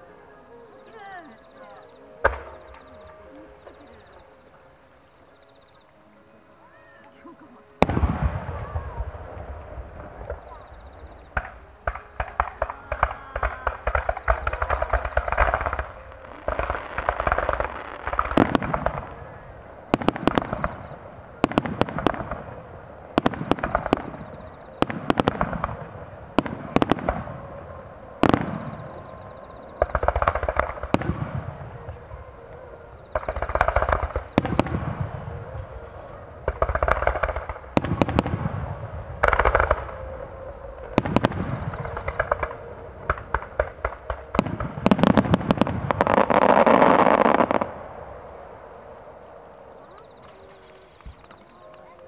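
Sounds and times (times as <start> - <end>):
firework shells booming: 7.8 - 32.2, 33.0 - 48.8
firework crackling: 7.8 - 52.0.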